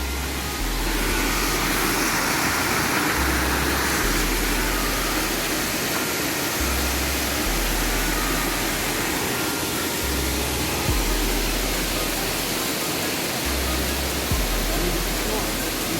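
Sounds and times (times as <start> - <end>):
waterfall roaring: 0.0 - 15.9
low rumble: 10.0 - 12.4.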